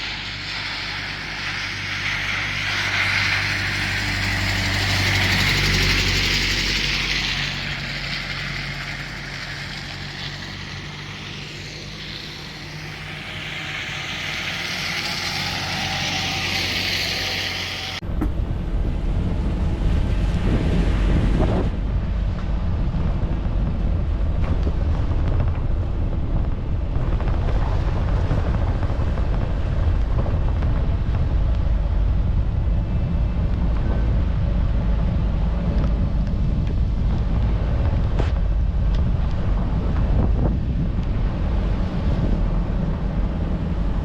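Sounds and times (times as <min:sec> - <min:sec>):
vehicle road rumble: 0:00.0 - 0:44.0
wind buffeting microphone: 0:00.0 - 0:44.0.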